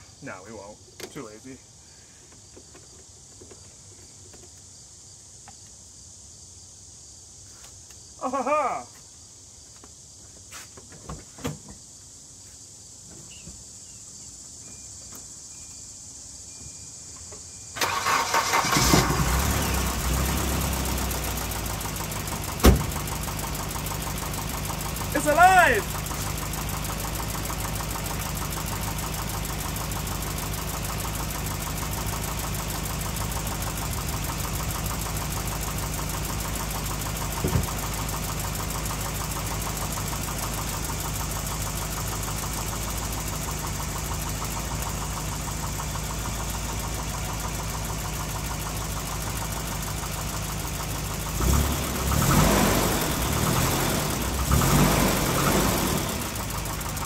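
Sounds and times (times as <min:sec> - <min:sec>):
car engine idling: 0:17.8 - 0:57.0.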